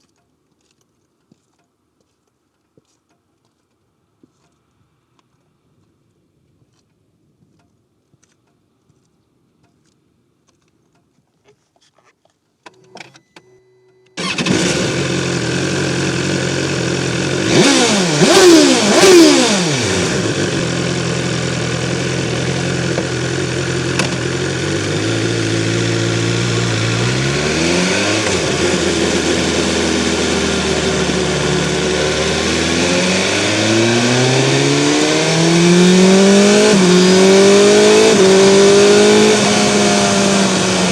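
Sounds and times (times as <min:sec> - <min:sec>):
motorcycle engine idling and revving: 0:14.2 - 0:40.9.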